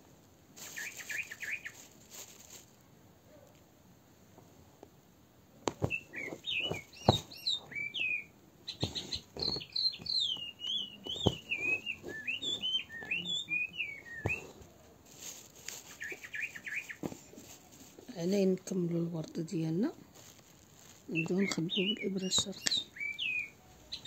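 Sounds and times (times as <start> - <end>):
small bird chirping and warbling: 5.8 - 14.4, 16.0 - 17.0, 21.1 - 24.0.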